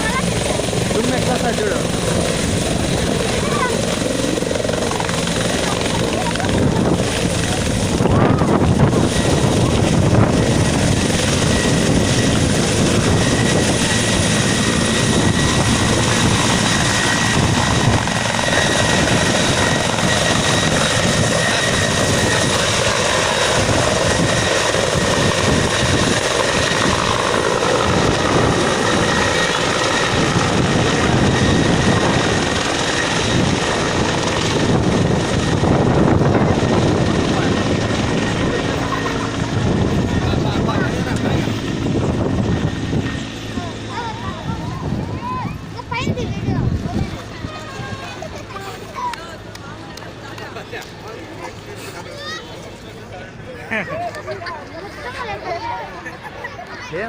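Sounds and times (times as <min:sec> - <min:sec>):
helicopter taking off: 0:00.0 - 0:57.0.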